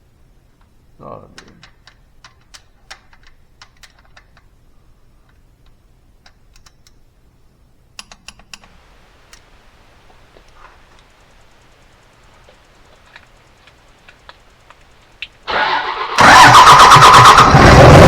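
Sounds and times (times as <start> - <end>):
hand tools clicking and tapping: 1.4 - 4.5, 8.0 - 9.4.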